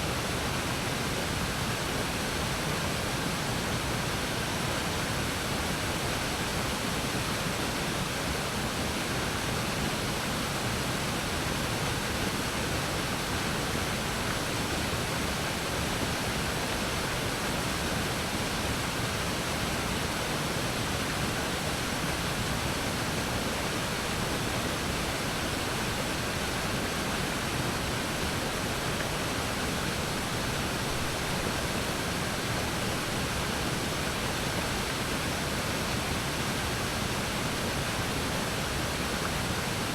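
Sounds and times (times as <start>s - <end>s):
waterfall rushing: 16.4s - 39.9s.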